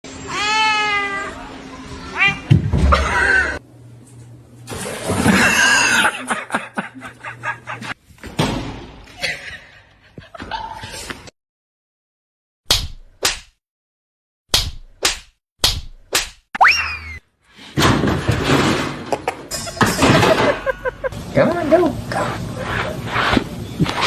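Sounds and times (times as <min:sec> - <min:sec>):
cat meowing: 0:00.3 - 0:01.4, 0:02.0 - 0:02.5
sharp smack: 0:12.7 - 0:13.6, 0:14.5 - 0:16.4.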